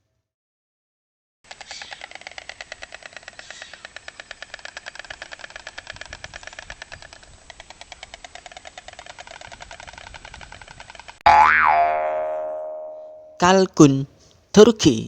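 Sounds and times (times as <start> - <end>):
stork clattering its bill: 1.5 - 11.2.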